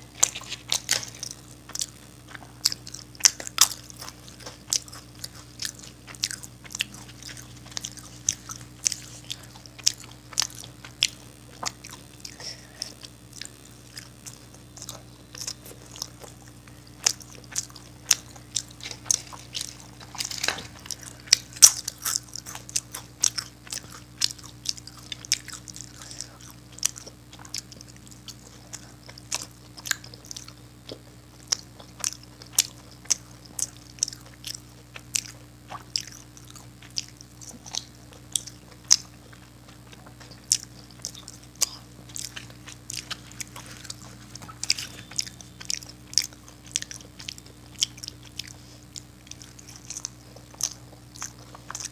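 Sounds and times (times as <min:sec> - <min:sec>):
chewing and crunching: 0:00.0 - 0:51.9
low steady hum: 0:00.0 - 0:51.9.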